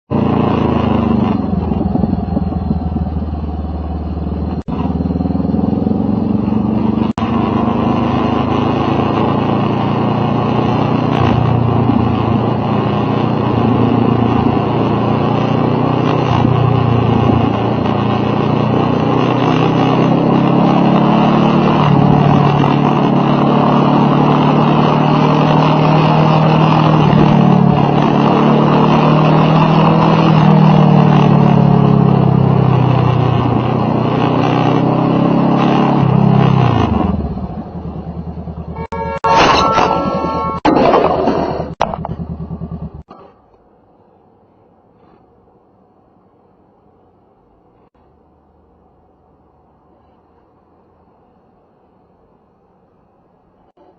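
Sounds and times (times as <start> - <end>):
motorcycle engine running: 0.1 - 19.0, 29.9 - 40.7, 41.3 - 43.2.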